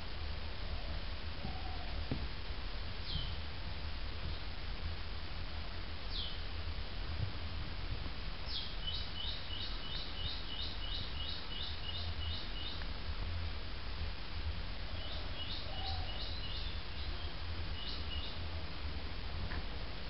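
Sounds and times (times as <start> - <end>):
small bird calling: 8.5 - 12.8, 14.9 - 18.4.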